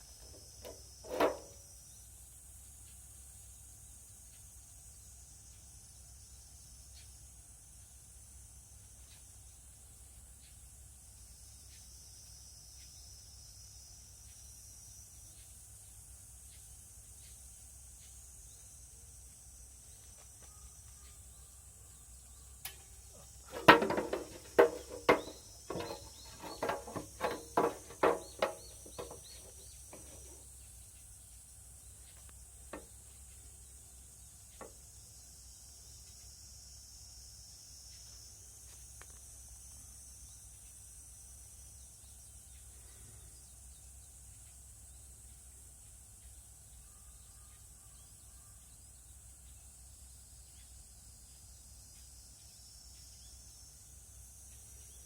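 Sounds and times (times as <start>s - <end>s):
insects trilling: 0.0s - 55.0s
sharp knocks and clanks: 0.2s - 1.6s, 23.4s - 30.4s.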